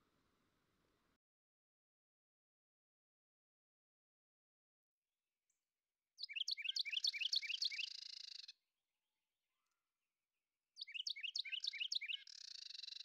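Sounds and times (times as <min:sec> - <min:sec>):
bird chirping song with trill: 0:06.2 - 0:08.5, 0:10.8 - 0:13.0.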